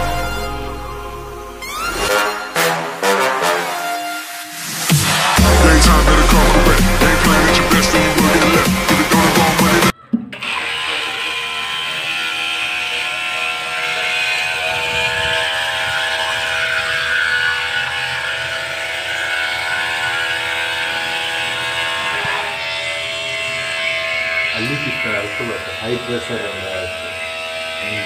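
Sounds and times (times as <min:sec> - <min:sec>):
electric motor whining: 0:04.9 - 0:28.0.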